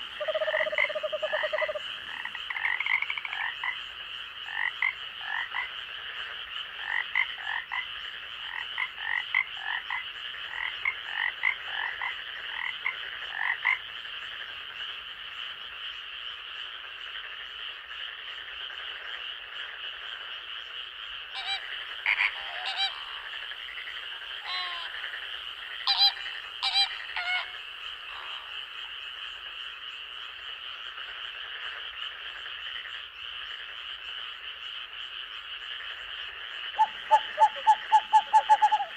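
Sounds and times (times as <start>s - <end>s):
high-pitched frog chorus: 0.0s - 38.9s
sharp frog calls: 0.0s - 38.9s.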